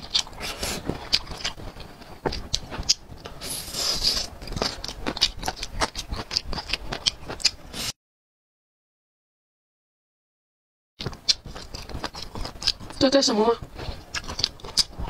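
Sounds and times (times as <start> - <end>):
wet chewing and lip-smacking: 0.0 - 7.9, 11.0 - 15.0
hissing: 3.4 - 4.3.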